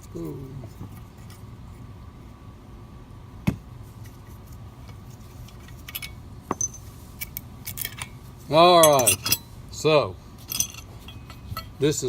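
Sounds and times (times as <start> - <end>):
metallic clinks of tools: 5.9 - 6.9, 8.8 - 9.5, 10.4 - 11.8.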